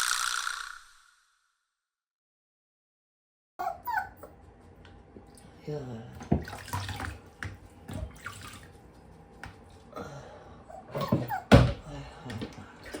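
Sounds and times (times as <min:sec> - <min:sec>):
water splashing and dripping: 0:06.3 - 0:09.0.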